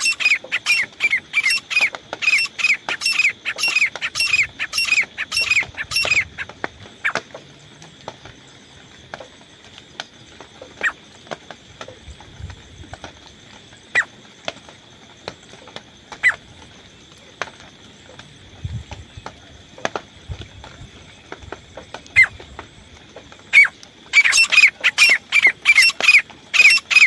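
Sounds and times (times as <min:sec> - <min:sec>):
francolin harsh call: 0:00.0 - 0:07.2, 0:23.5 - 0:27.0.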